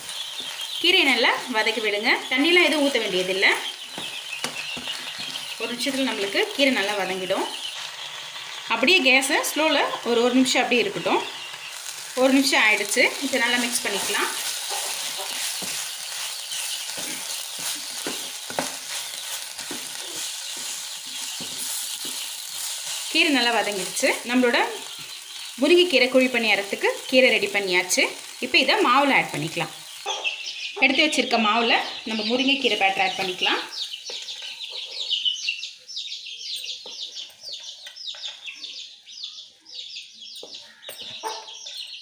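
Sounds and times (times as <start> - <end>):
vegetables sizzling in oil: 0.0 - 34.7
small birds chirping: 0.0 - 42.0
spoon scraping a pan: 12.9 - 23.9.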